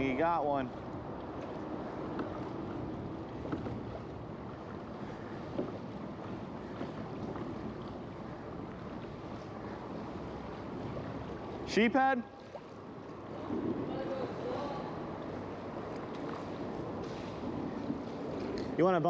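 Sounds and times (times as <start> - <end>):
water lapping around kayak: 0.0 - 19.0
wind on microphone: 13.2 - 18.8.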